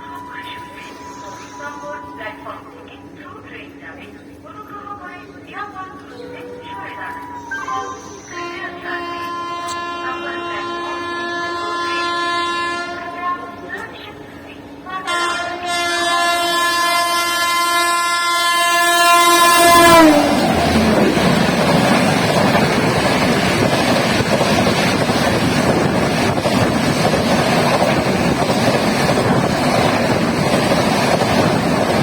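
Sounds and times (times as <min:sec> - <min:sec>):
train passing with roar: 0:05.4 - 0:32.0
locomotive horn: 0:08.3 - 0:13.6, 0:15.0 - 0:21.2
train wheel clatter: 0:19.5 - 0:32.0.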